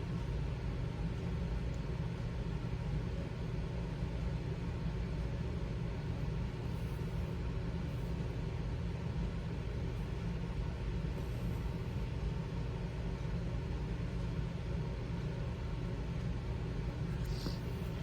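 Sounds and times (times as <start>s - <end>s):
low room noise rumble: 0.0s - 18.0s.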